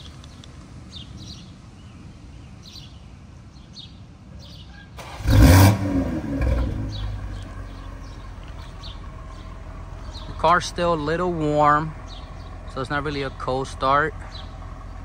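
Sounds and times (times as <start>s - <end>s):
car engine starting and idling: 5.0s - 15.0s.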